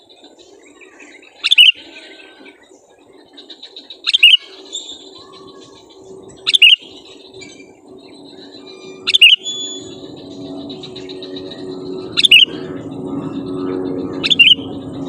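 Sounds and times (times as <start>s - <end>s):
bulbul calling: 1.4s - 2.1s, 4.0s - 15.0s.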